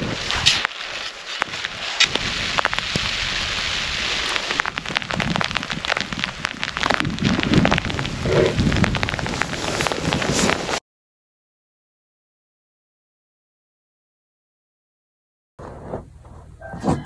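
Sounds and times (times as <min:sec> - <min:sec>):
rain hitting a surface: 0:00.0 - 0:10.8
rumbling wind: 0:00.0 - 0:10.8.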